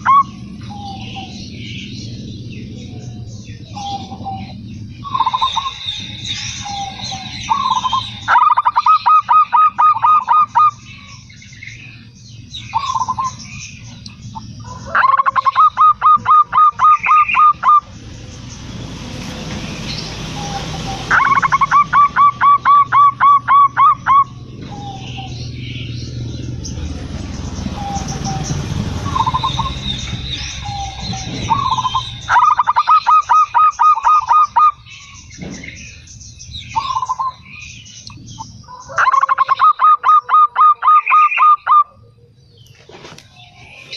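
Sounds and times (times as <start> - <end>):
dove cooing: 0.0 - 1.4, 2.8 - 11.1, 14.4 - 17.9, 20.3 - 25.9, 27.6 - 29.9, 30.5 - 34.8, 38.7 - 42.6
low rumbling noise: 0.0 - 39.6
bird chirps: 0.0 - 43.9.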